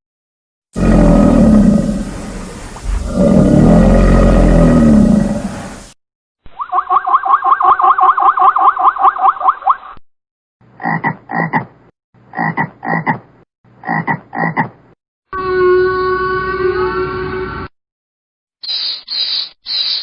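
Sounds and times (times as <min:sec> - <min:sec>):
frog chirping: 0:06.6 - 0:09.7
steady pitched frog call: 0:06.6 - 0:09.8.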